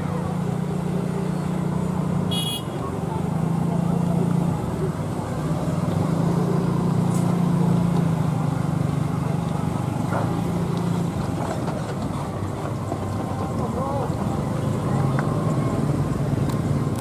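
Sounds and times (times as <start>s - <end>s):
train wheels rumbling on rails: 9.3s - 16.6s.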